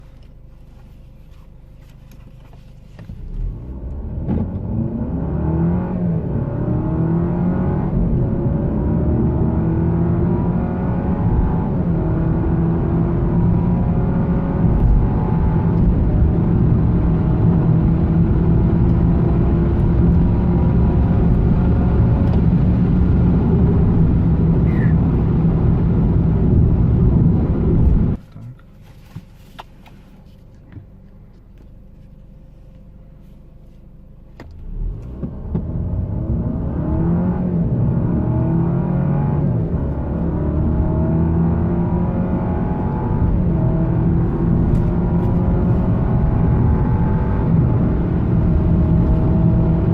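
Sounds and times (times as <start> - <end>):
car engine accelerating: 2.1 - 28.6, 33.7 - 49.9.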